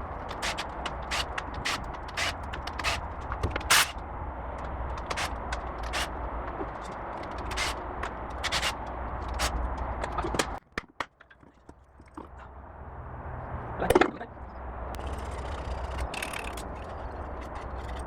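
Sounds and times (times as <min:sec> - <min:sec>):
metallic clicks and scrapes: 0:00.0 - 0:10.6, 0:14.9 - 0:18.0.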